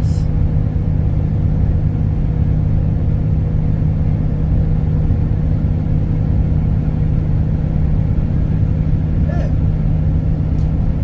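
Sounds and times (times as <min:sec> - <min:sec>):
road hum: 0:00.0 - 0:11.0
truck engine droning: 0:00.0 - 0:11.0.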